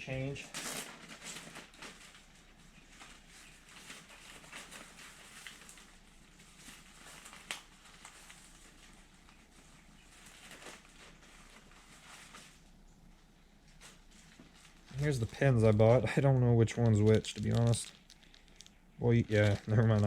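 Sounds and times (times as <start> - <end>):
rustling and handling small parts: 13.7 - 20.0.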